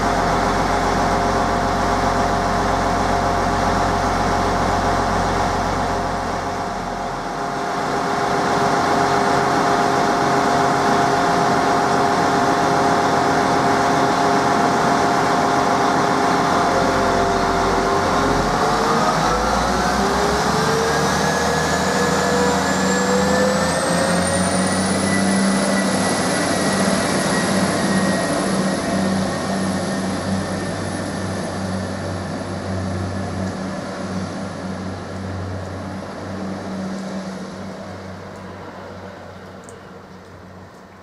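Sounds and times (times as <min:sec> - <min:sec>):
diesel train engine whine: 0:00.0 - 0:41.0.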